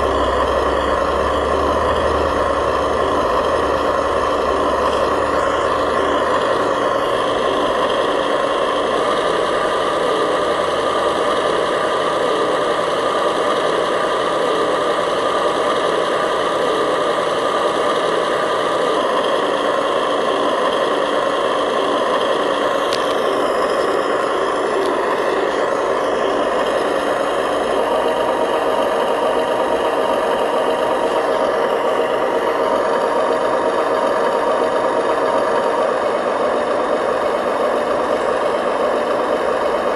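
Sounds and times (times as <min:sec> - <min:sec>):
model truck engine drone with rattle: 0:00.0 - 0:39.9.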